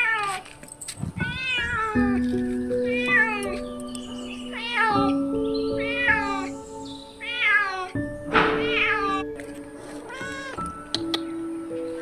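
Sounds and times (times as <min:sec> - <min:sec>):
cat meowing: 0:00.0 - 0:00.5, 0:01.2 - 0:03.6, 0:04.5 - 0:06.6, 0:07.2 - 0:08.0, 0:08.6 - 0:09.3, 0:10.1 - 0:10.7
background music with held notes: 0:00.0 - 0:12.0.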